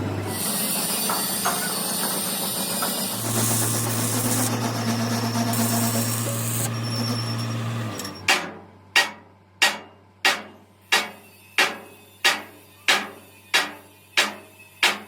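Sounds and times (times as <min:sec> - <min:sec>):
hammer striking steel: 0:01.0 - 0:02.1, 0:08.3 - 0:15.0.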